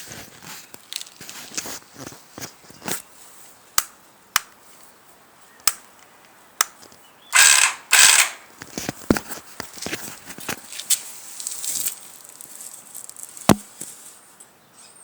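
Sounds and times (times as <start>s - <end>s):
starter gears grinding whir: 7.4s - 8.4s
starter sharp clicks: 7.4s - 8.5s.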